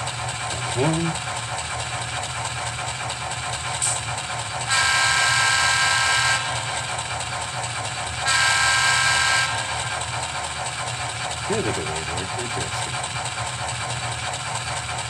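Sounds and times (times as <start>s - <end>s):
diesel engine idling: 0.0s - 15.0s
diesel horn blast: 4.7s - 6.6s, 8.2s - 9.8s.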